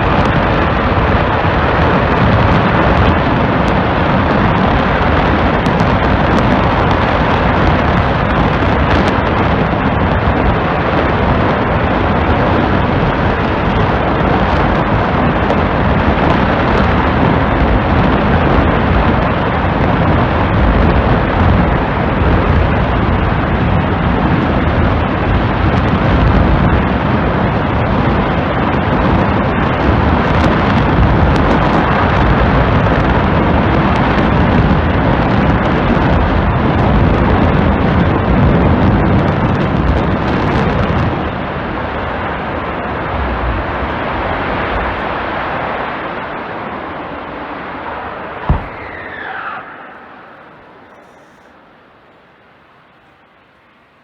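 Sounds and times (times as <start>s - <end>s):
rocket engine roaring: 0.0s - 51.1s.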